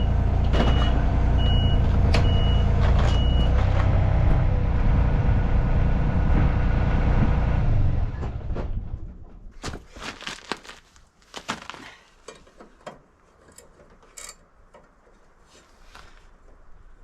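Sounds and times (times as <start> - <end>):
sharp clicks and knocks: 12.2 - 15.4.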